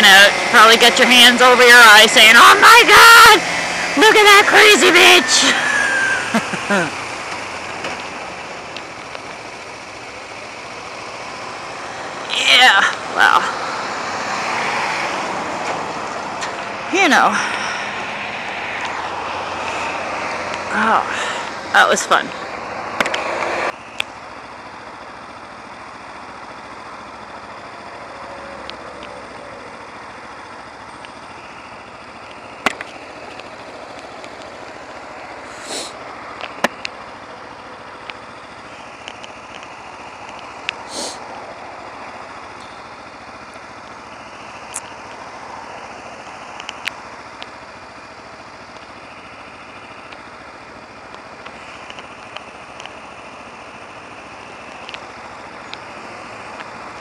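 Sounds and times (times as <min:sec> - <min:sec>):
motorcycle engine running: 0:00.0 - 0:57.0
wind and road noise: 0:00.0 - 0:57.0
brief hisses: 0:35.5 - 0:36.0, 0:40.9 - 0:41.2.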